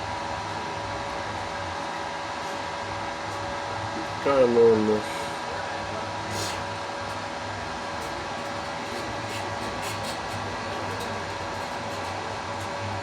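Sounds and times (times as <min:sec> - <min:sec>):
electrical hum: 0:00.0 - 0:13.0
welding machine fan whir: 0:00.0 - 0:13.0.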